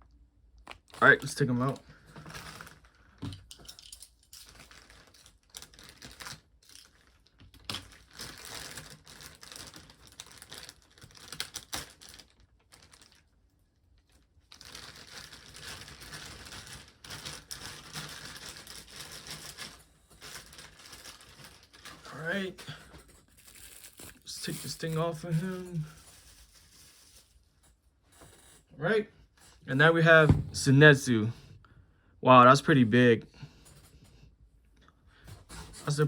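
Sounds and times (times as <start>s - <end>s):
plastic packaging crinkling: 3.8s - 13.4s, 14.0s - 27.5s.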